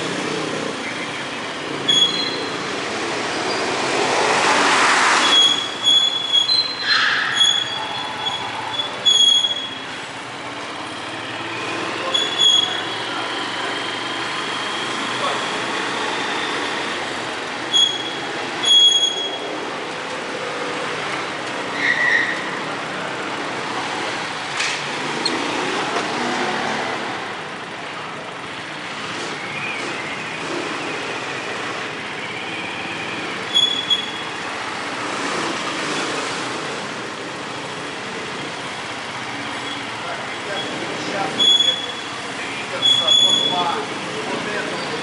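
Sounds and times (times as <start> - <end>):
moving vehicle noise: 0.0 - 45.0
short electronic beeps: 1.9 - 2.6.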